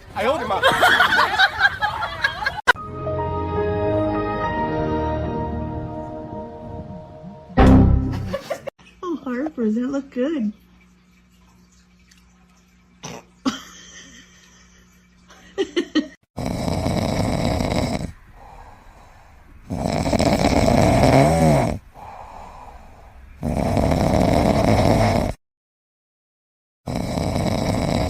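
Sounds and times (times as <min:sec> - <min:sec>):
pet snoring raspily: 0:16.4 - 0:22.7, 0:23.4 - 0:25.4, 0:26.9 - 0:28.0.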